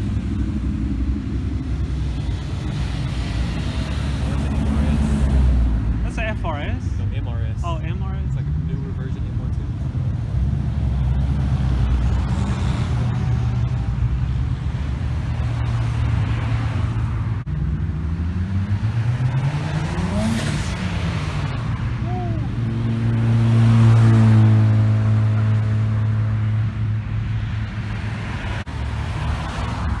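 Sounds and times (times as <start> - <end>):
car engines driving: 0.0 - 30.0
loud engine running close by: 0.0 - 30.0
car accelerating past: 9.8 - 30.0.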